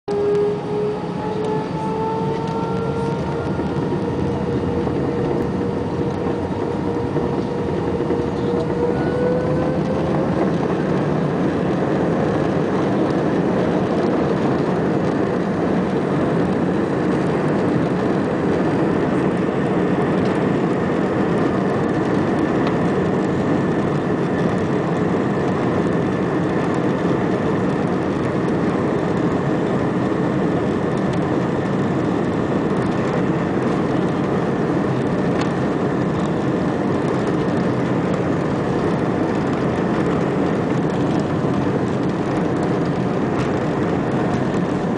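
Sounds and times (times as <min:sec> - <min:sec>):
jet engines spooling up: 0:00.1 - 0:44.9.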